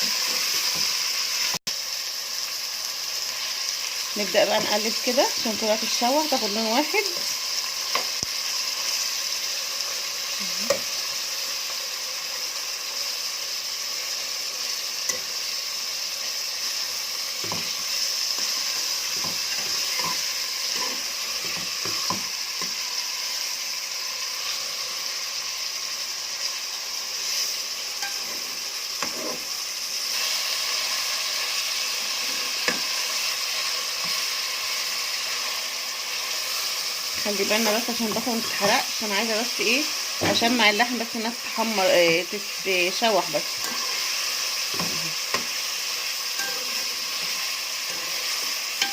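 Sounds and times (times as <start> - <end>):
meat and onion sizzling in butter: 0.0 - 48.9
spoon scraping a pot: 17.4 - 22.8, 27.2 - 29.5, 43.4 - 45.6, 46.4 - 48.9.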